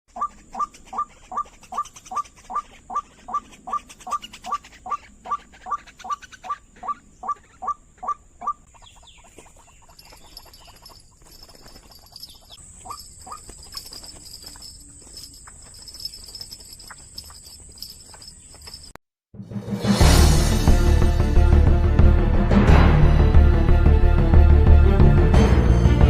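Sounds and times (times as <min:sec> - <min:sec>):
waterhen calling: 0:00.1 - 0:18.7.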